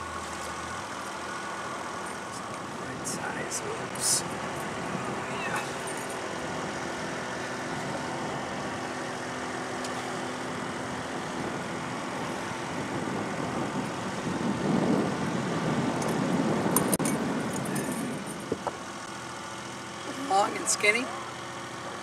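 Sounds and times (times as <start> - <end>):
rough rumble: 0.0 - 19.1
boat motor humming: 0.0 - 22.0.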